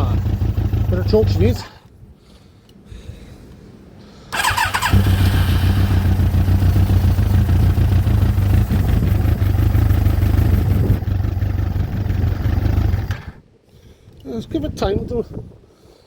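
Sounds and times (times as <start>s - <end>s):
motorcycle engine running: 0.0s - 1.7s, 4.4s - 13.4s
electric starter cranking: 4.4s - 8.6s.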